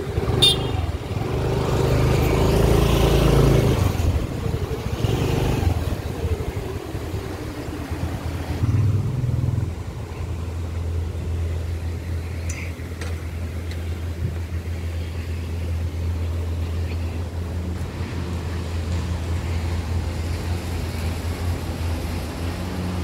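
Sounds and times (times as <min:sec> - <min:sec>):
motorbike engine running: 0:00.0 - 0:07.8, 0:08.4 - 0:09.9.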